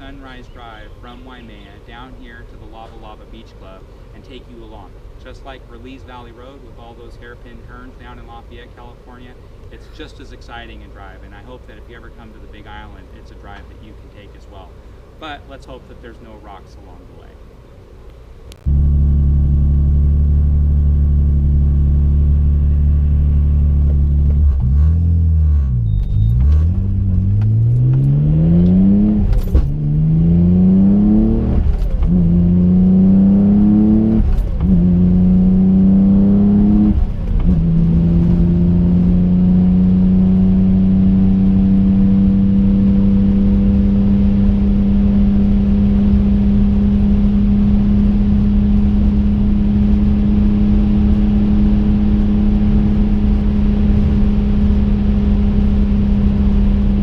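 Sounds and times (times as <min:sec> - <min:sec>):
car engine accelerating: 0:18.5 - 0:57.0.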